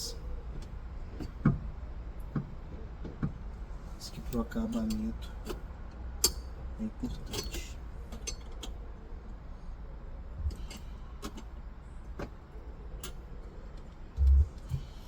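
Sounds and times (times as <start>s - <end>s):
low rumble: 10.3s - 10.7s, 14.1s - 15.0s.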